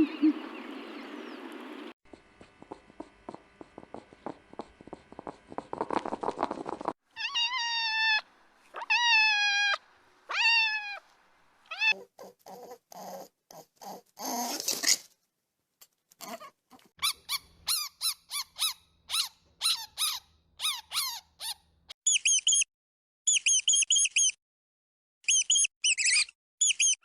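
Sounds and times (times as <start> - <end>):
cat meowing: 7.2 - 8.2, 8.8 - 11.0.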